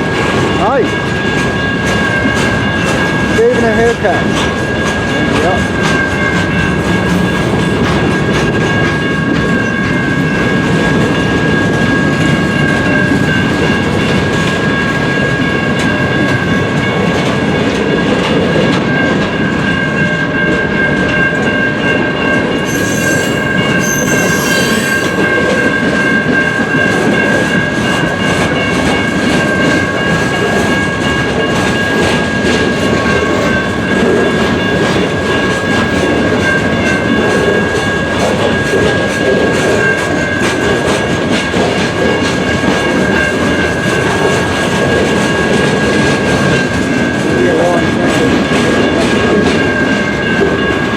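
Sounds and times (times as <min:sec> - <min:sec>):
train wheels rumbling and clacking: 0:00.0 - 0:50.9
high-pitched wheel squeal: 0:22.6 - 0:25.3.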